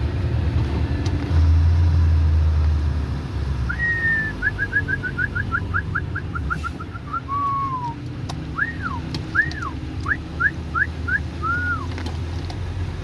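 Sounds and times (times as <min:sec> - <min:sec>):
engine running: 0:00.0 - 0:13.0
whistled notes: 0:03.7 - 0:08.0, 0:08.6 - 0:11.9.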